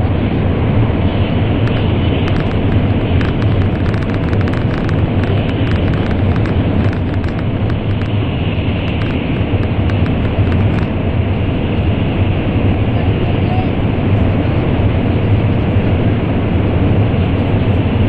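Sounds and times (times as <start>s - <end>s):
train roaring through tunnel: 0.0s - 18.0s
small ticks and rattles: 1.6s - 11.0s.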